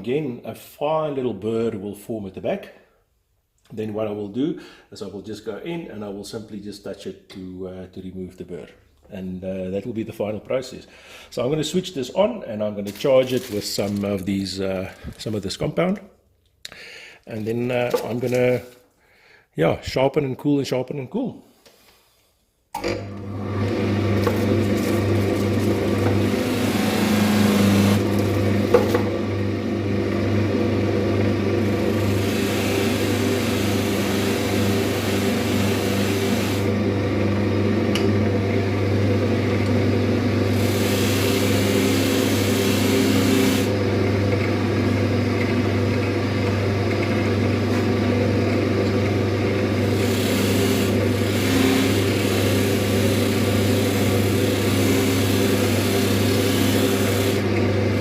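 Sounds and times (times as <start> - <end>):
lathe running: 22.8 - 58.0.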